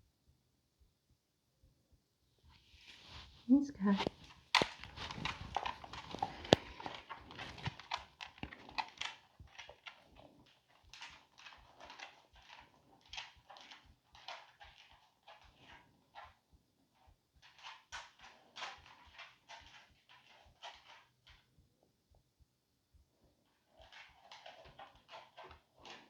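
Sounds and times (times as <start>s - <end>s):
dog scuffling about: 2.6s - 16.4s.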